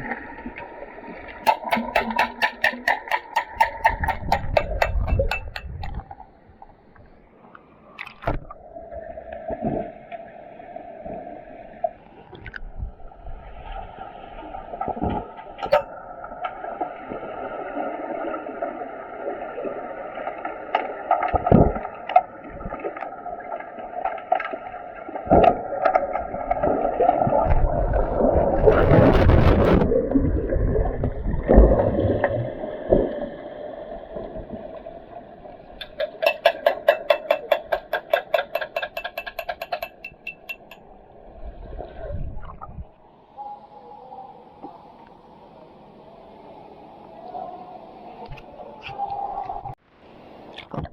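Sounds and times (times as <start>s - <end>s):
rush of water: 0.0s - 6.6s, 7.4s - 50.9s
steady water noise: 0.0s - 50.9s
sharp clicks and knocks underwater: 0.6s - 7.2s, 8.0s - 8.6s, 14.8s - 16.7s, 20.7s - 23.1s, 24.0s - 33.2s, 35.7s - 41.0s.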